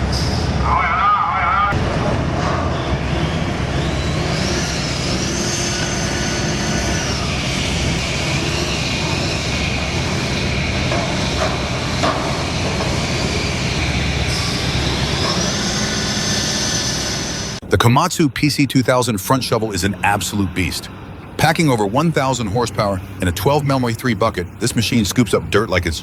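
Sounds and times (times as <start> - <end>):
excavator engine running: 0.0 - 26.0
high whine: 0.0 - 26.0.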